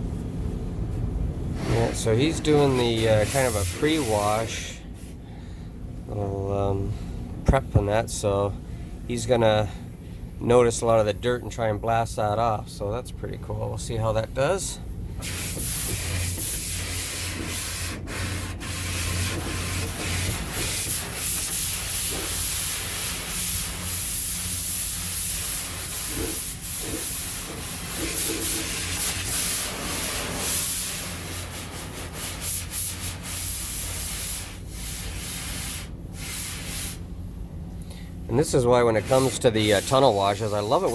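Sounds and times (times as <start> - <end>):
low steady hum: 0.0 - 40.9
pressure washer water spray: 2.6 - 4.6, 15.2 - 37.0, 39.0 - 40.9.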